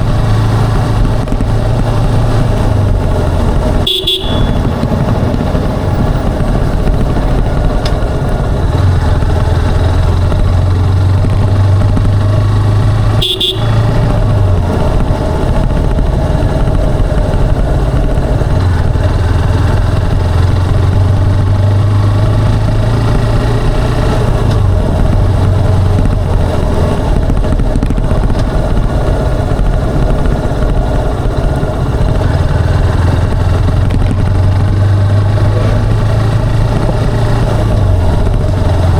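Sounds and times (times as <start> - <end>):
motorcycle engine running: 0.0 - 38.9
short high beep: 3.9 - 4.7.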